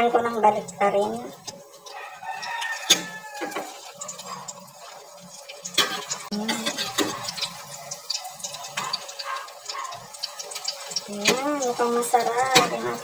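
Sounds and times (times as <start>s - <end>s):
fritters sizzling in hot oil: 0.0s - 13.0s
metal spatula clicking on pan: 1.4s - 4.6s, 5.5s - 12.8s.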